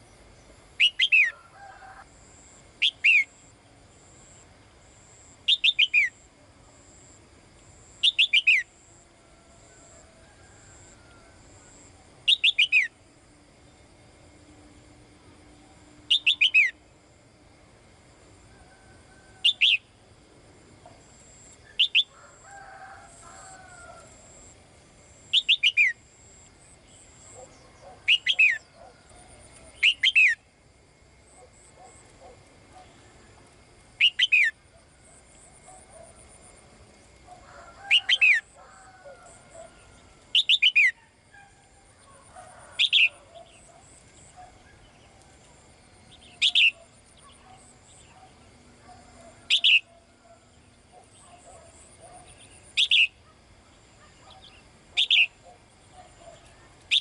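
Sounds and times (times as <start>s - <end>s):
songbird calling: 0.0s - 1.5s, 2.8s - 3.4s, 5.4s - 6.2s, 8.0s - 8.7s, 10.8s - 13.0s, 16.1s - 16.8s, 18.8s - 20.0s, 21.0s - 22.2s, 25.3s - 26.0s, 26.8s - 30.5s, 34.0s - 36.3s, 37.3s - 38.6s, 39.2s - 57.0s.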